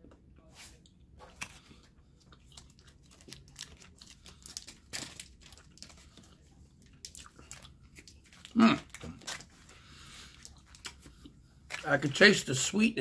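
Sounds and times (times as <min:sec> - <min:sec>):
person chewing dried meat: 0:00.8 - 0:11.9.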